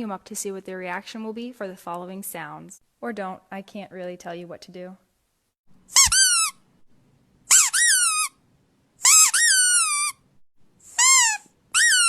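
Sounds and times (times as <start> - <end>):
squeaky dog toy squeaking: 5.9 - 6.6, 7.5 - 8.4, 9.0 - 10.2, 10.9 - 12.0.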